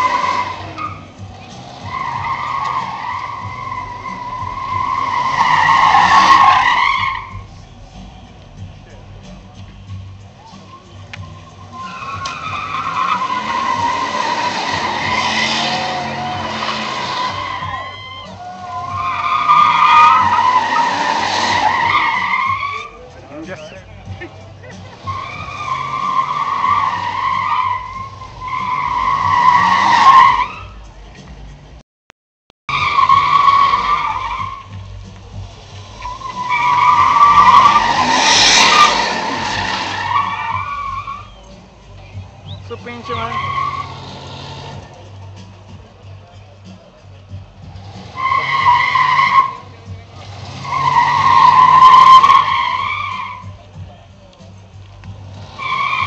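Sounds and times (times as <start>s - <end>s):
tyres squealing: 0.0s - 31.0s, 32.7s - 56.0s
car engine revving: 0.0s - 31.8s, 32.7s - 56.0s
car engine running: 33.1s - 56.0s.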